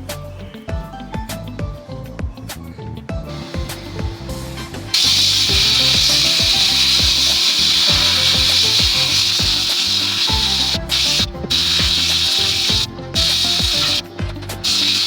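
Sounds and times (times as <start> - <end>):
background music: 0.0 - 15.0
rasping hiss of abrasive work: 3.3 - 15.0.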